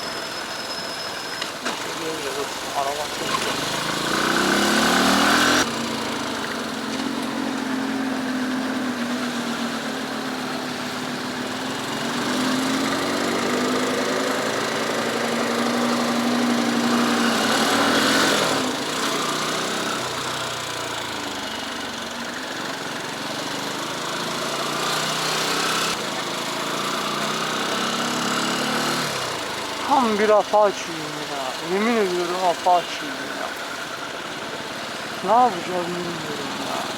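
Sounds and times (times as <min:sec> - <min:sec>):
motorcycle engine running: 0:01.7 - 0:36.9.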